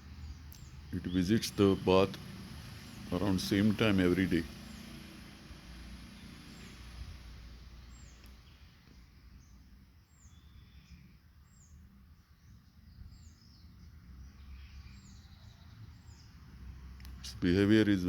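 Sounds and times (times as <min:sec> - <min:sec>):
small bird chirping: 0:00.0 - 0:03.7, 0:04.4 - 0:17.2.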